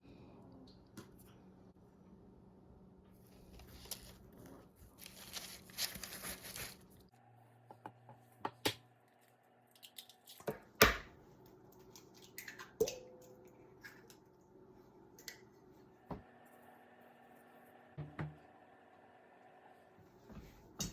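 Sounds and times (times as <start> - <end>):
rustling and scraping: 3.2 - 7.0.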